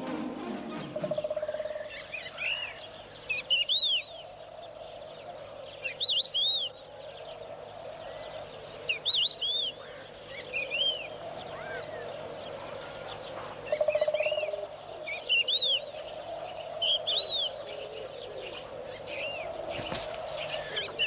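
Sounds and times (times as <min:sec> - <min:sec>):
faint outdoor background: 0:00.0 - 0:21.0.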